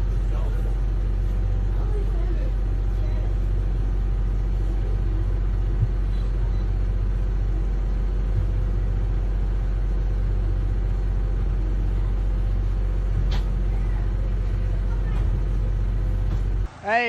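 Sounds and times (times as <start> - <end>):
engine droning: 0.0 - 16.8.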